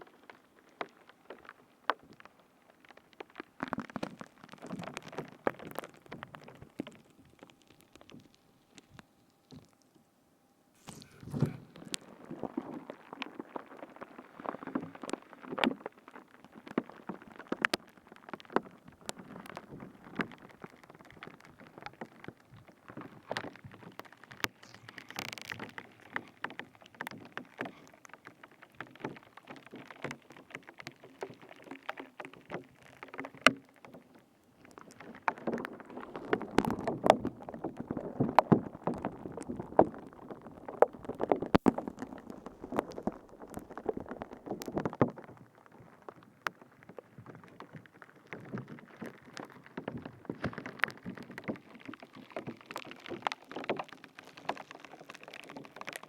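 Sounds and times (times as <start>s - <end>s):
material being squished crackling: 10.8s - 34.0s, 34.6s - 56.0s.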